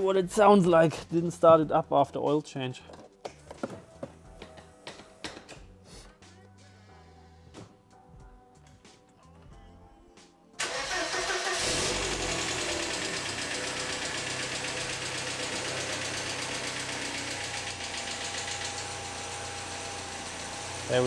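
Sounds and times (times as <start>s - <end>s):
car engine starting and idling: 10.6s - 21.0s.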